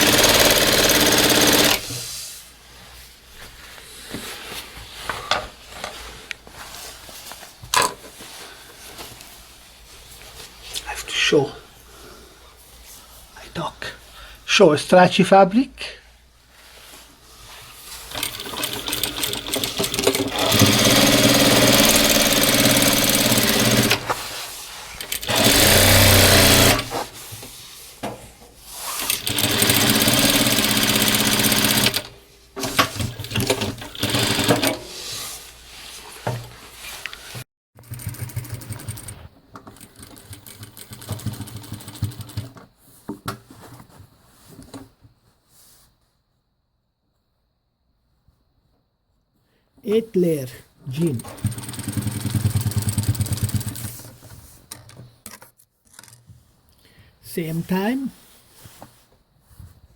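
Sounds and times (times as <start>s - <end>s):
sewing machine stitching: 0.0s - 2.0s, 18.1s - 24.2s, 25.0s - 27.1s, 28.8s - 34.9s, 37.8s - 42.6s, 51.0s - 54.2s.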